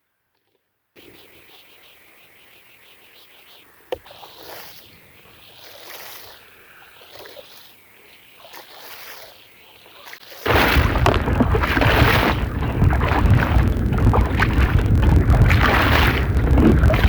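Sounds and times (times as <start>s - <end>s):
rushing wash noise with low rumble: 10.5s - 17.0s.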